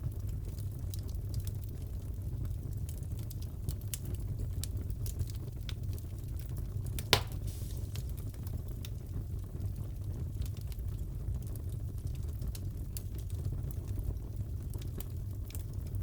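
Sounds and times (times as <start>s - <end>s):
wood fire crackling: 0.0s - 16.0s
fire pop: 7.0s - 8.6s.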